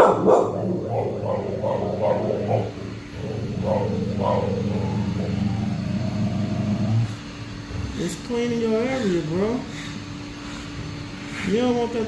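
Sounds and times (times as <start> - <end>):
dog barking and grumbling: 0.0 - 7.1
robot vacuum humming: 0.5 - 7.9.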